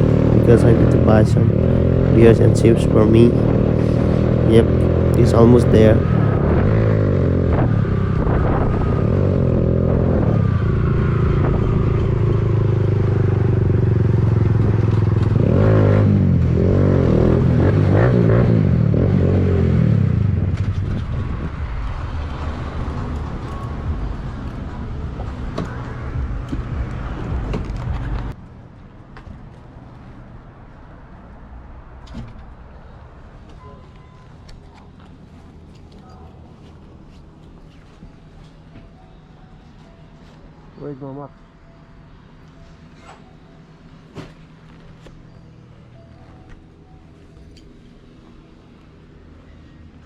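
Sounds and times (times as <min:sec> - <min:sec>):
motorcycle engine running: 0:00.0 - 0:28.4.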